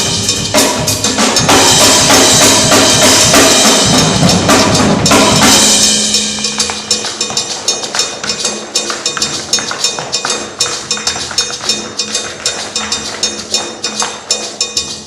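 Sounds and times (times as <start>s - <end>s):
cymbals wash: 0.0s - 8.9s
drum kit percussion music: 0.0s - 15.0s.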